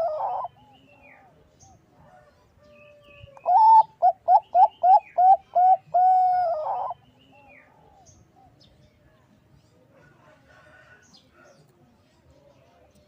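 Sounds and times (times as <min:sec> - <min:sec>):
dove cooing: 0:00.0 - 0:01.4, 0:03.3 - 0:08.6.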